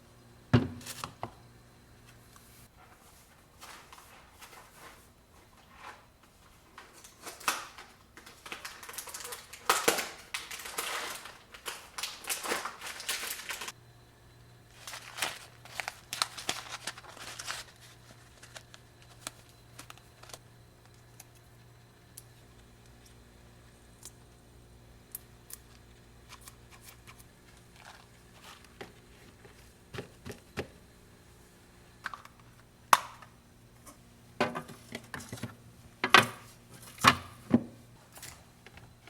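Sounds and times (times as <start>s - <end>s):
faint steady hum: 0.0s - 39.0s
plastic bags crinkling: 6.8s - 13.7s, 14.7s - 20.4s, 26.3s - 29.7s.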